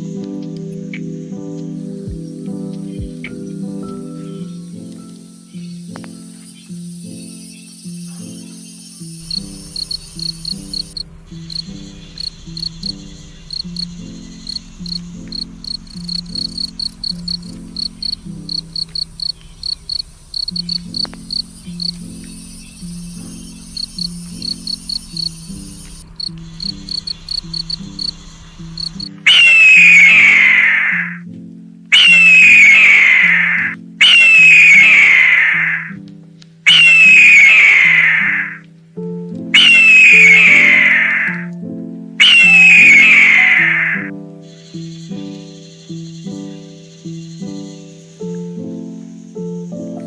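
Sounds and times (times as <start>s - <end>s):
background music: 0.0s - 50.0s
insect chirping: 6.5s - 31.2s, 32.0s - 36.0s, 36.7s - 38.6s, 39.6s - 41.4s, 42.2s - 49.4s
loud screech falling in pitch: 28.9s - 31.2s, 32.0s - 36.0s, 36.7s - 38.6s, 39.6s - 41.5s, 42.2s - 44.1s.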